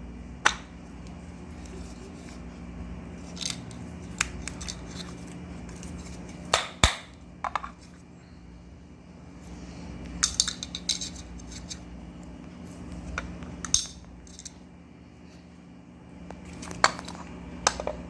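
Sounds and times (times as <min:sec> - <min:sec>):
metal parts clicking and clinking: 0:03.2 - 0:05.2, 0:10.2 - 0:11.8, 0:13.6 - 0:14.6.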